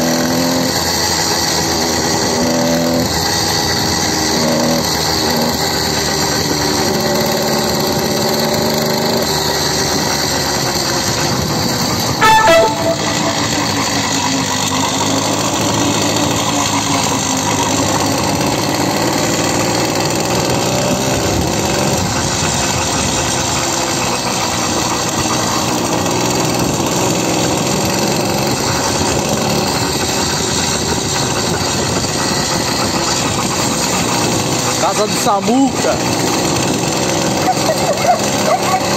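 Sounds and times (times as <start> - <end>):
small motorcycle engine running: 0.0 - 38.9
motorcycle horn beep: 12.2 - 14.7.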